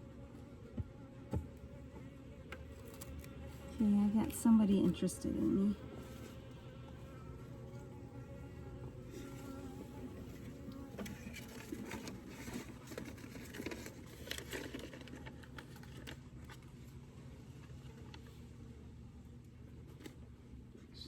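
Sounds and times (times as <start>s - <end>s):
honeybee buzzing: 0.0s - 14.5s
clicking and scraping of hive frames: 0.6s - 7.0s, 8.2s - 18.4s.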